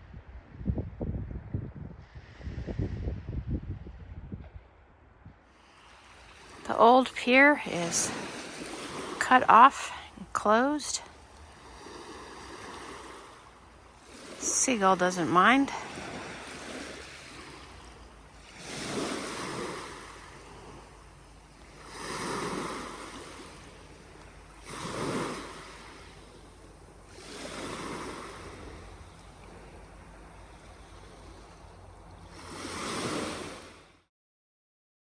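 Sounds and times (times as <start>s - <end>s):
waves washing on a beach: 5.5s - 34.0s
steady low rumble: 19.9s - 22.0s, 28.1s - 32.5s.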